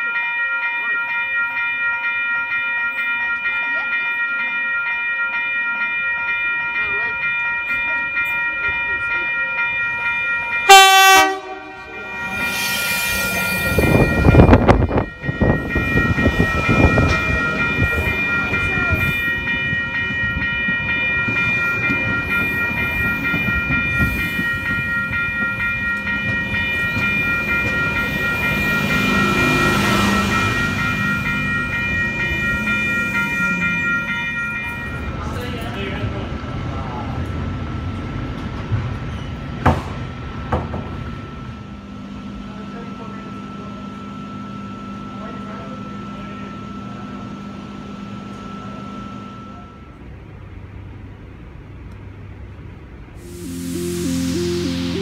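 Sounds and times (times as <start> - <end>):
train rumble: 5.5 - 55.0
electric train whine: 6.4 - 55.0
train horn blast: 10.7 - 12.1.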